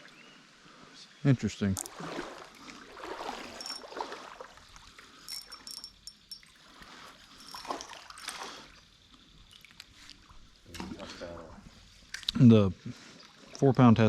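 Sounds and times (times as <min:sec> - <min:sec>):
light water splashes: 0:01.6 - 0:12.4
river water trickling: 0:01.6 - 0:12.4, 0:13.1 - 0:13.6.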